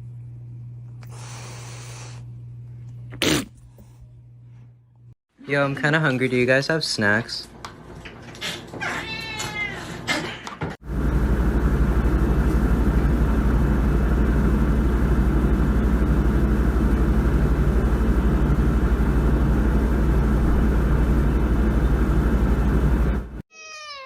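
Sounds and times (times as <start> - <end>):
machine droning with pulse: 10.8 - 23.4.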